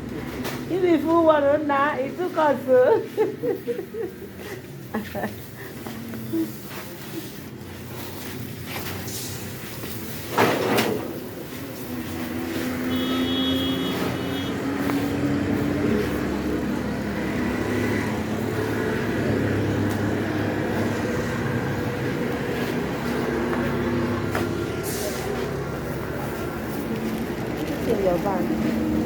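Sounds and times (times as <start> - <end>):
vehicle engine pulling away: 11.0 - 29.0.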